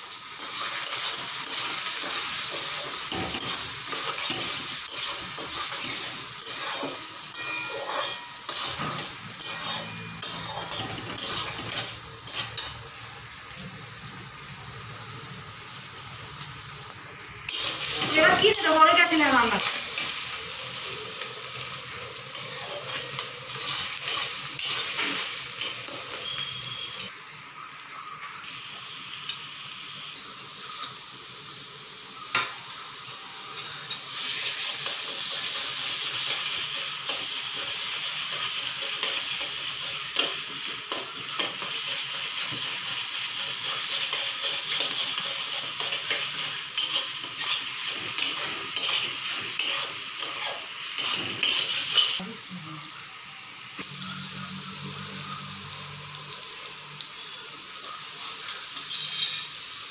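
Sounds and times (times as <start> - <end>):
onion sizzling in hot oil: 0.0 - 59.9
spatula scraping a wok: 0.3 - 12.8, 17.5 - 20.4, 21.5 - 27.1, 33.6 - 52.2, 58.8 - 59.8.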